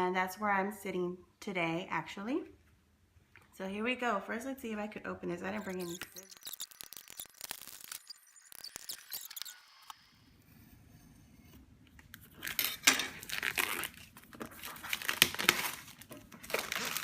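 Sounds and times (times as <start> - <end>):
packaging crinkling and ripping: 5.7 - 9.5, 12.1 - 17.0.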